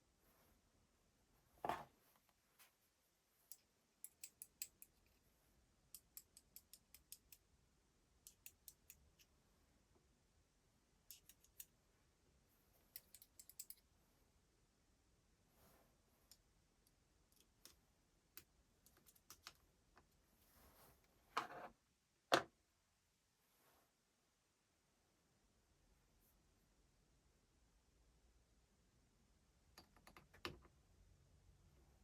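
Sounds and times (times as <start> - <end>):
small hard parts clicking: 13.0 - 13.8.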